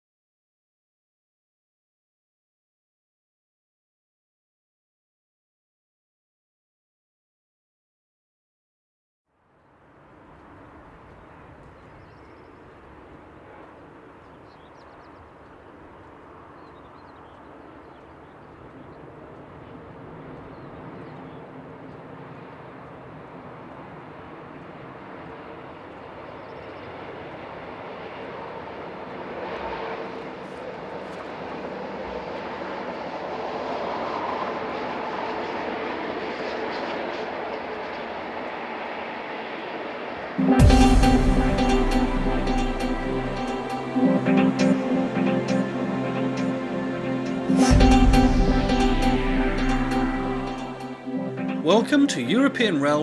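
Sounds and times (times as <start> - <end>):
steady hum: 40.4 - 52.6.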